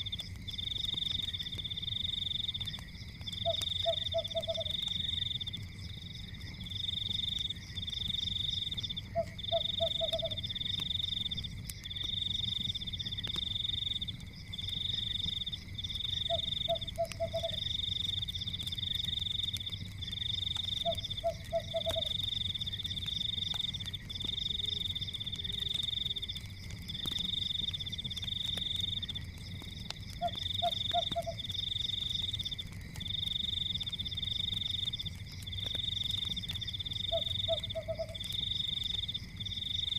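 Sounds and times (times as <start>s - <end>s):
faint crackling: 0.0s - 39.9s
frog croaking: 3.4s - 4.8s, 9.0s - 10.6s, 16.2s - 17.7s, 20.8s - 22.2s, 30.2s - 31.5s, 37.0s - 38.3s.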